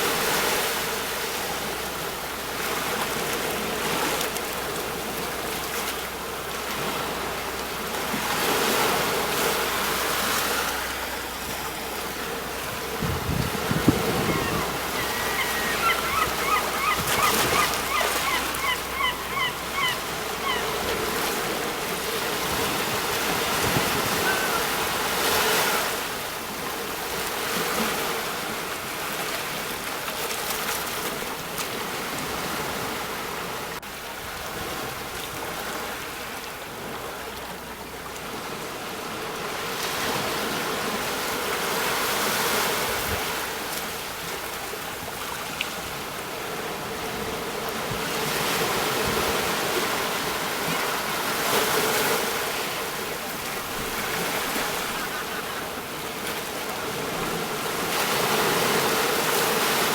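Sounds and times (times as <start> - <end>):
sea waves breaking on shore: 0.0 - 59.9
bird calling short notes: 14.1 - 20.7.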